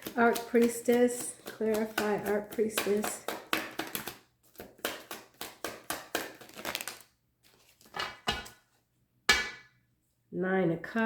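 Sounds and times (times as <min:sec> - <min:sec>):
cards being shuffled: 0:00.0 - 0:08.0
soft card rustle: 0:00.0 - 0:08.0.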